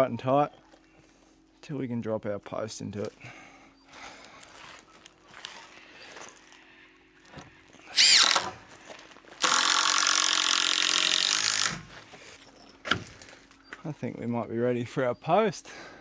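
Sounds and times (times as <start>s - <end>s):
power drill running: 7.3s - 12.2s.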